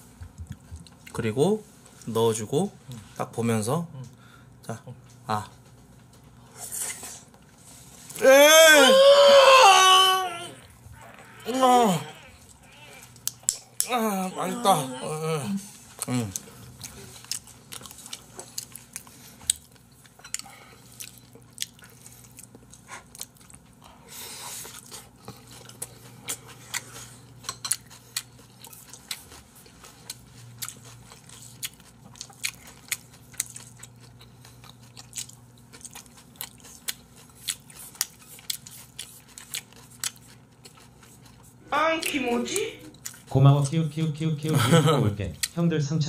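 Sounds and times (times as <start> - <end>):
wet chewing clicks and smacks: 13.0 - 13.9, 15.9 - 23.8, 24.6 - 42.2, 42.9 - 43.3, 45.3 - 45.6.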